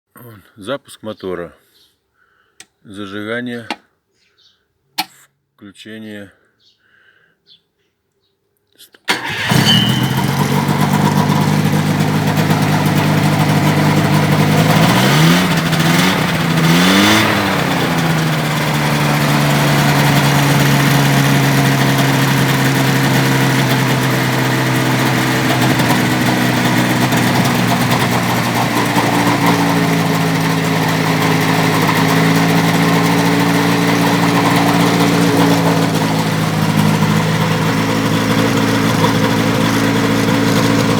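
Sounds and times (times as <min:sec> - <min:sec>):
engine idling and revving: 0:09.1 - 0:40.9.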